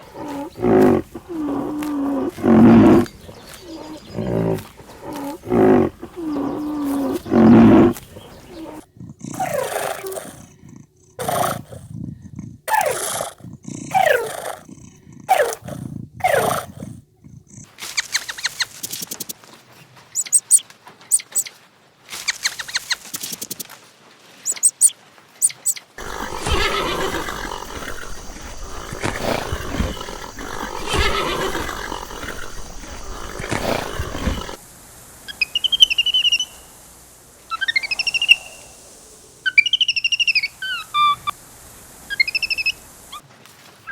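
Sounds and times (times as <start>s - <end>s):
big cat roaring and growling: 0.0s - 17.5s, 26.0s - 34.6s
fast high-pitched chirping: 20.2s - 21.4s, 24.5s - 34.6s.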